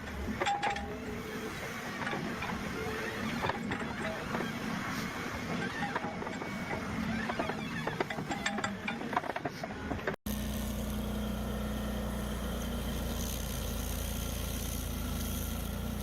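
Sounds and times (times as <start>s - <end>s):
stump grinder engine running: 10.3s - 16.0s.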